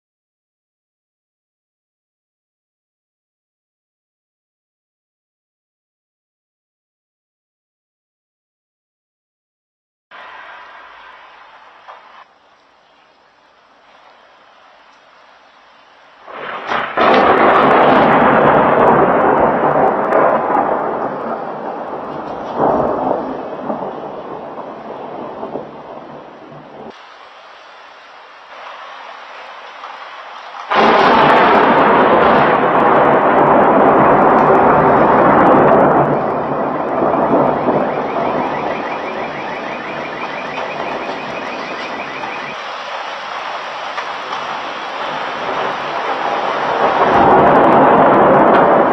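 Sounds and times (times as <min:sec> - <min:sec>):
thunderclap with rolling rumble: 0:16.0 - 0:27.7, 0:28.5 - 0:48.9
faint high warbling tone: 0:36.1 - 0:42.6.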